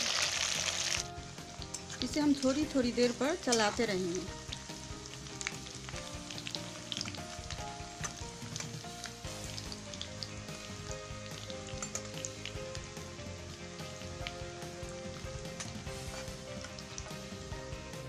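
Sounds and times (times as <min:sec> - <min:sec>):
oil popping crackles: 0:00.0 - 0:12.9
vegetables sizzling in hot oil: 0:00.0 - 0:18.0.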